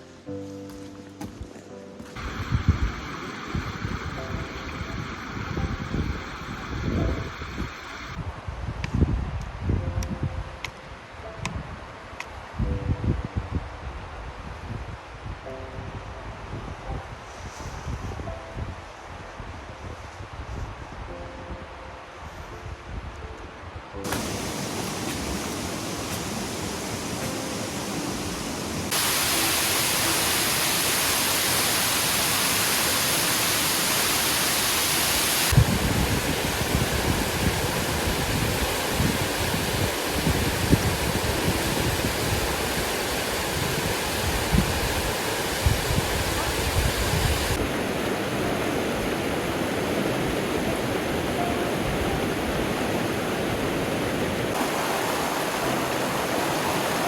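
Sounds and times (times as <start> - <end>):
waterfall rushing: 2.2 - 8.2, 24.0 - 57.0.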